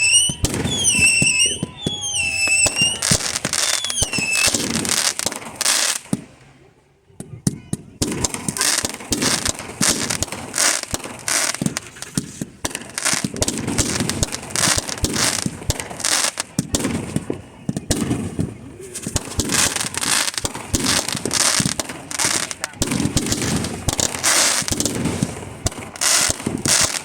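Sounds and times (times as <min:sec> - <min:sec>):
fireworks banging and crackling: 0:00.0 - 0:06.6, 0:07.2 - 0:27.0.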